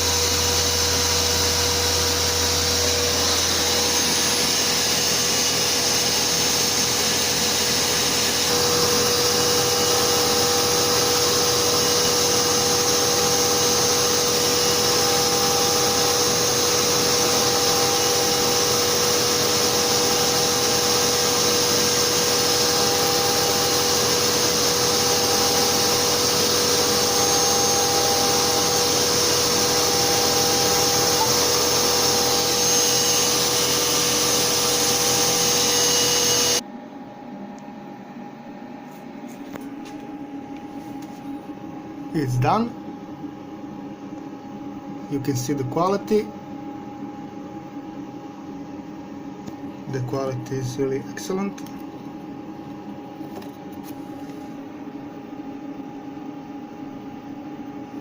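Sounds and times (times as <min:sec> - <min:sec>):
higher tone: 0:00.0 - 0:10.9, 0:24.6 - 0:36.6
dust extraction vacuum: 0:00.0 - 0:36.6, 0:38.9 - 0:42.8, 0:45.0 - 0:46.4, 0:49.4 - 0:58.0
router spindle running: 0:00.0 - 0:36.6
steady tone: 0:00.0 - 0:36.6.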